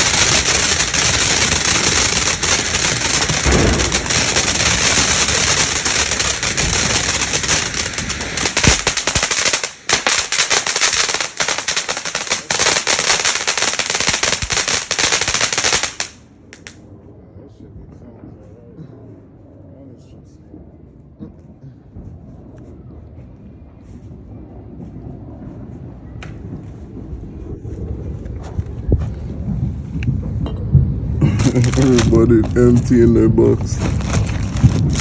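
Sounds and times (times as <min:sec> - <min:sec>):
firework hissing and crackling: 0:00.0 - 0:16.8, 0:31.2 - 0:35.0.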